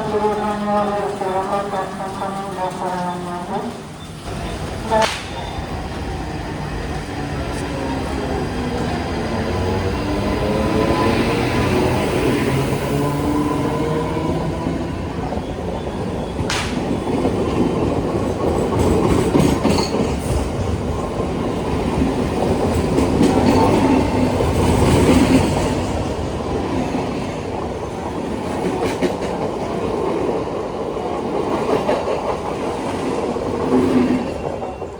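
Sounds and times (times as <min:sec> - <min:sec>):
train wheels rumbling on rails: 0:00.0 - 0:34.9.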